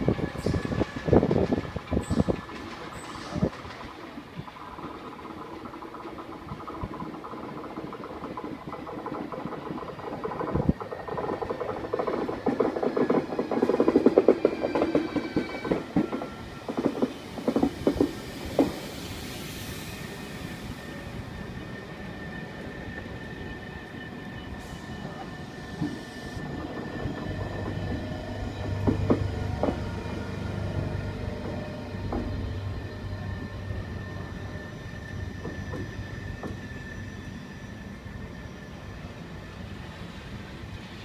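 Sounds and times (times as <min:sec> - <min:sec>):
train rumble: 0:00.0 - 0:41.0
brake squeal: 0:29.9 - 0:40.0.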